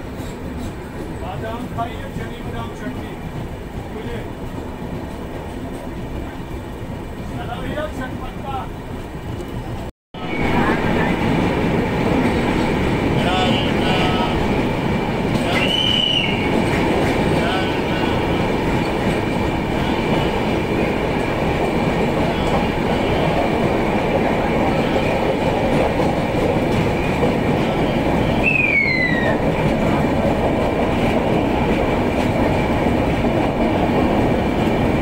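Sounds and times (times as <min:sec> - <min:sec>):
train wheels rumbling on track: 0:00.0 - 0:35.0
high falling squeal: 0:15.5 - 0:16.5, 0:28.4 - 0:29.4.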